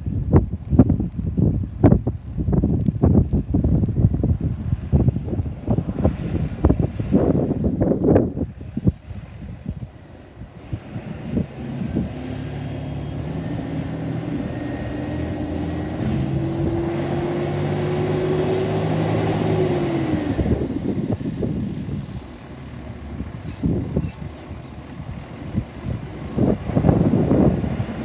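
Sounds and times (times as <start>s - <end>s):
wind buffeting microphone: 0.0s - 28.0s
garbage truck engine revving: 10.6s - 28.0s.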